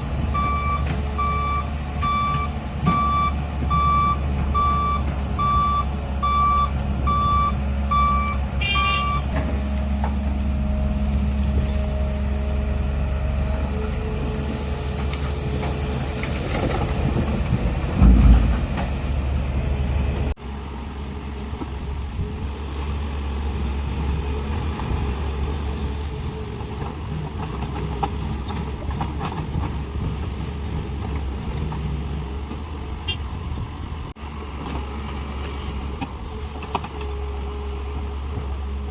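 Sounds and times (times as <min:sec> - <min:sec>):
diesel engines running: 0:00.0 - 0:38.9
truck reversing alarm beeps: 0:00.2 - 0:09.4
heavy thump: 0:17.9 - 0:19.0.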